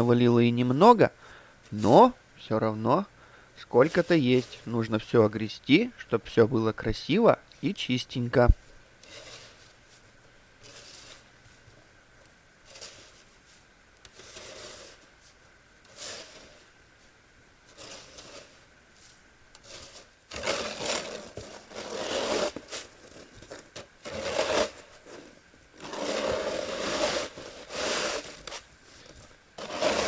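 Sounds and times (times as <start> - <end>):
snow shovel scraping snow: 3.6 - 4.7, 9.0 - 9.8, 10.6 - 11.3, 12.7 - 13.3, 14.1 - 15.1, 15.8 - 16.7, 17.7 - 30.0.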